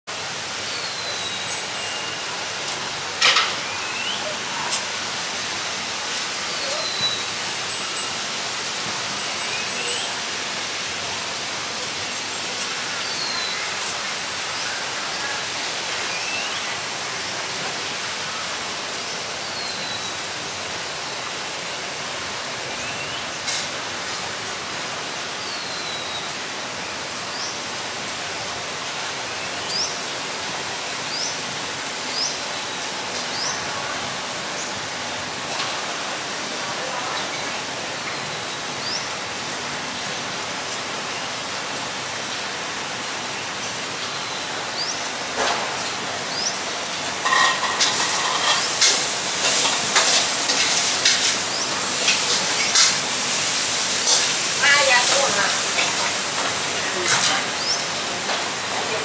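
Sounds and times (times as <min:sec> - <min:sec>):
outdoor background hiss: 0:00.1 - 0:59.0.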